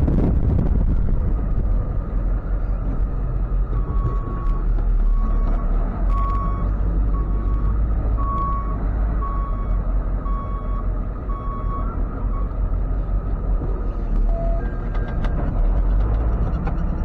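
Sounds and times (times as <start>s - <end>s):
truck engine rumble: 0.0s - 17.0s
truck backup alarm beeping: 3.7s - 12.8s, 14.2s - 15.5s.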